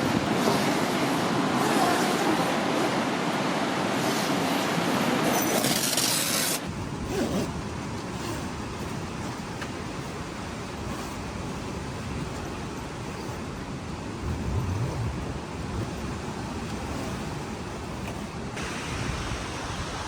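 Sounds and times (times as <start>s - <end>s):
strong wind blowing: 14.0s - 17.0s.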